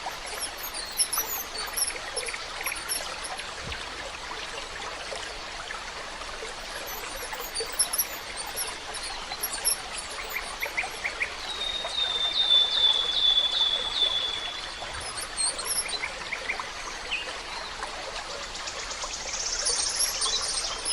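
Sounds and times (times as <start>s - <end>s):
songbirds calling: 0.0s - 3.5s, 6.6s - 17.8s, 18.5s - 20.9s
stream trickling: 0.0s - 20.9s
high bird chirps: 6.9s - 16.1s.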